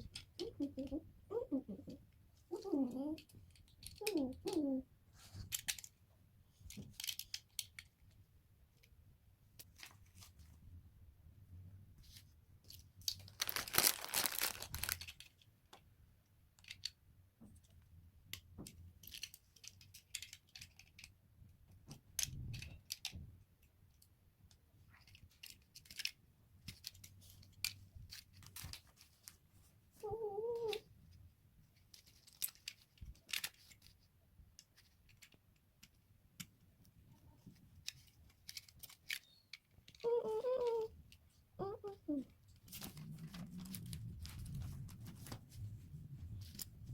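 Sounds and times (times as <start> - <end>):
plastic pieces clicking: 1.8 - 4.8, 5.4 - 8.9, 12.6 - 15.8, 16.5 - 17.0, 17.6 - 23.3, 23.9 - 29.2, 31.8 - 41.2.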